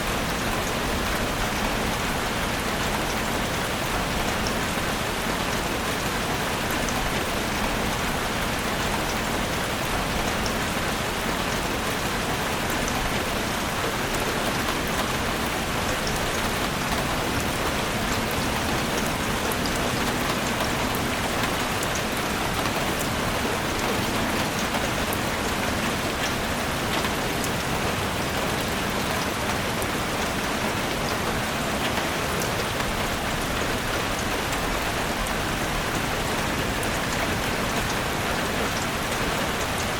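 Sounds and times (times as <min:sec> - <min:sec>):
rain falling in a forest: 0:00.0 - 0:39.9.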